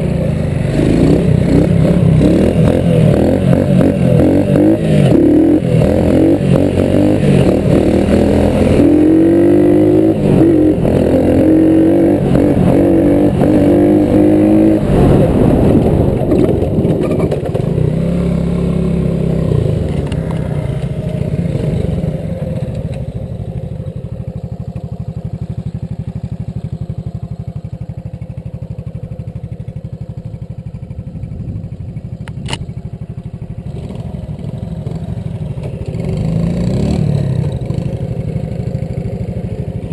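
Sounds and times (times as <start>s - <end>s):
small engine revving: 0.0s - 23.5s, 33.6s - 39.0s.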